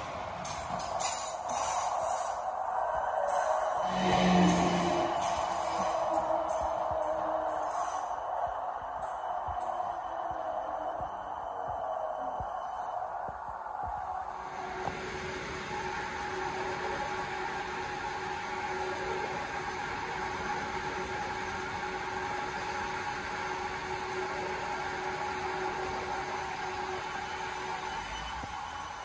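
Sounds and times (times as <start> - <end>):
noisy rush: 0.0 - 19.1
electric train humming: 0.0 - 29.0.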